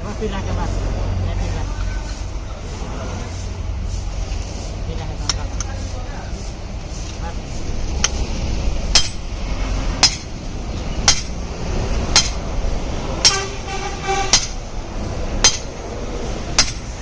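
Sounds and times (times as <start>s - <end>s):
steady low rumble: 0.0s - 17.0s
hammer striking metal: 8.9s - 9.3s, 10.0s - 10.4s, 11.0s - 11.5s, 12.1s - 12.5s, 13.2s - 14.7s, 15.4s - 15.8s, 16.5s - 17.0s
horn-like tone: 13.3s - 14.4s.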